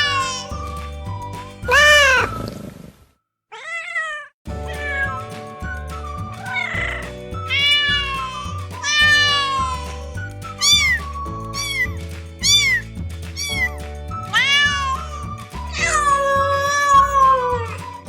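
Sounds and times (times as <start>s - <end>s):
cat meowing: 0.0s - 0.6s, 1.7s - 2.3s, 3.5s - 5.2s, 6.4s - 9.9s, 14.3s - 17.8s
background music with low notes: 0.0s - 2.5s, 4.5s - 18.0s.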